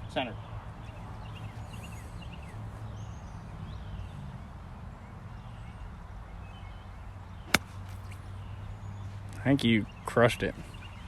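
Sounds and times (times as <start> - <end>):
bird chirps: 6.4 - 11.0.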